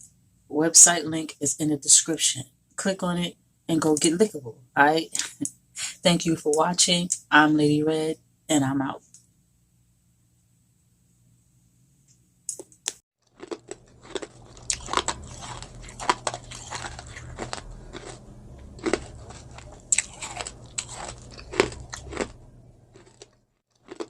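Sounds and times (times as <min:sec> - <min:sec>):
crunchy bites and chewing: 0:12.5 - 0:24.0
low steady hum: 0:13.5 - 0:23.5.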